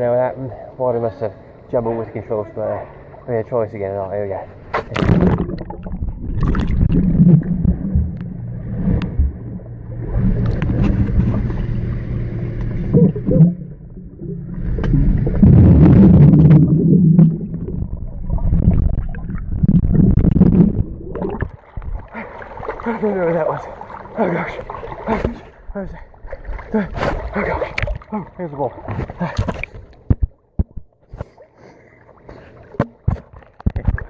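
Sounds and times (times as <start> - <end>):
water gurgling and sloshing: 0.0 - 34.0
electric motor humming underwater: 5.4 - 18.1.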